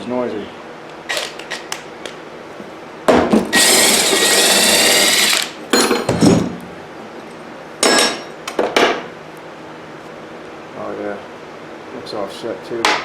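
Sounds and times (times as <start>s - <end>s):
power drill whirring: 1.1s - 1.6s, 3.5s - 5.6s.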